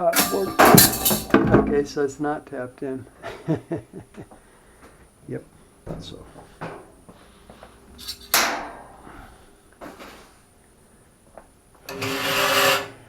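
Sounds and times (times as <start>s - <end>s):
board scraping on metal brackets: 11.9s - 13.0s.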